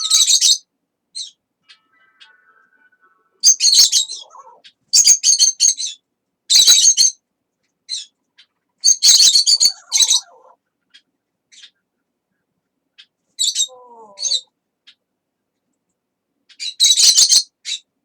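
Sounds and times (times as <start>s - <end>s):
parrot chirping: 0.0s - 0.6s, 1.2s - 7.2s, 8.8s - 11.8s.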